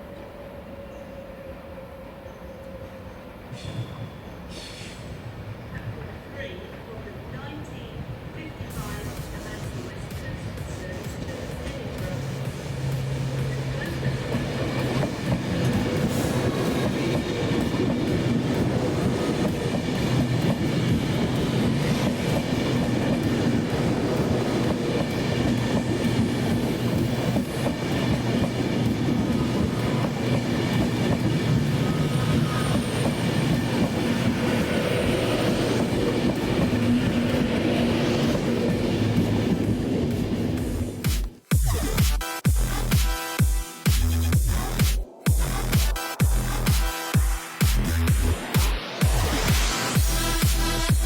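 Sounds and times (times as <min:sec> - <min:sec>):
train wheels rumbling on rails: 0:03.3 - 0:42.0.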